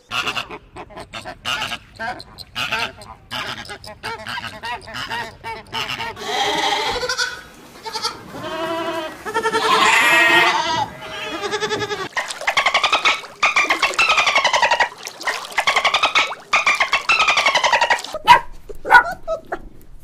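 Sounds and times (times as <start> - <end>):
dolphins chattering: 0.0 - 18.4
sheep bleating: 6.2 - 12.1.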